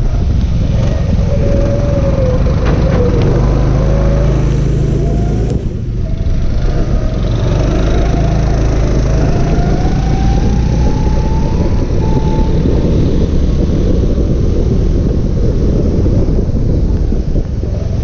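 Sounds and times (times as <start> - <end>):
go-kart engine revving: 0.6 - 13.8.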